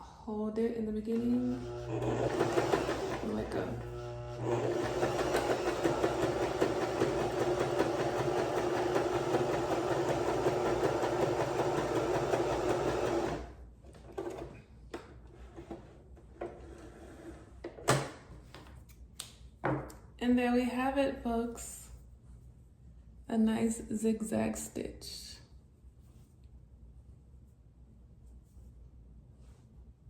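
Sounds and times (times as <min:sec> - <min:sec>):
sewing machine running: 0:01.4 - 0:13.6.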